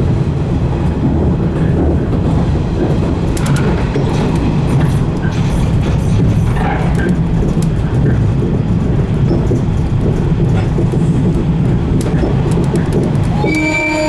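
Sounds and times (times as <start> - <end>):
train wheels and motors rumbling: 0.0 - 14.0
sharp clicks: 12.0 - 13.8.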